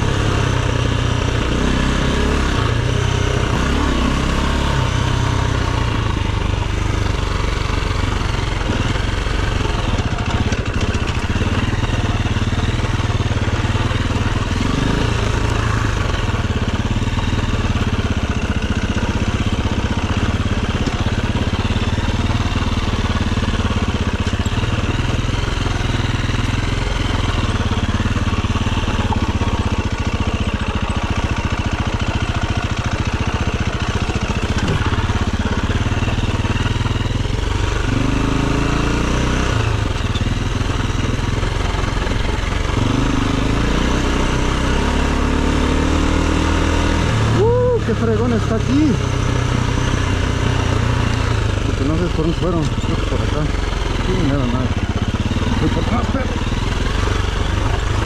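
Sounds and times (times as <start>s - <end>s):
dirt bike engine running: 0.0s - 58.0s.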